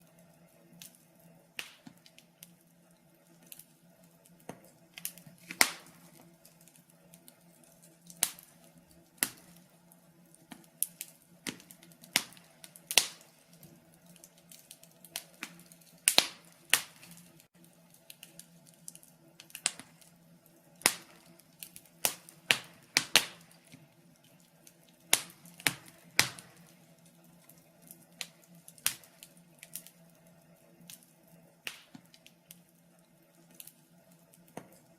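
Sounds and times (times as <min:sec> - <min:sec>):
wood fire crackling and popping: 0:00.0 - 0:34.9.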